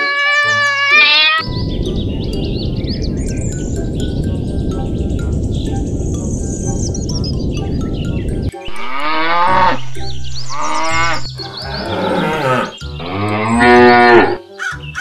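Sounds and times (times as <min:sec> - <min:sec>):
rushing noise: 0:08.7 - 0:12.7
cow mooing: 0:08.7 - 0:14.4.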